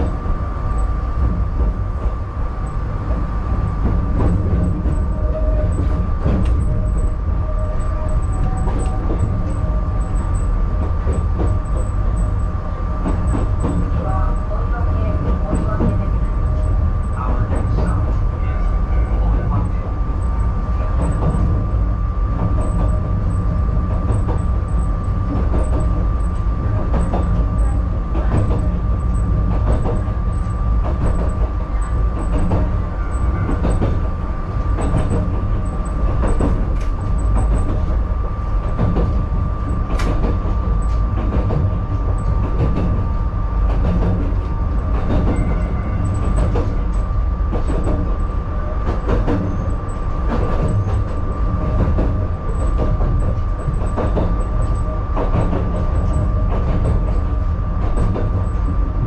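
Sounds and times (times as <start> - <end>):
train rumbling: 0.0 - 59.0.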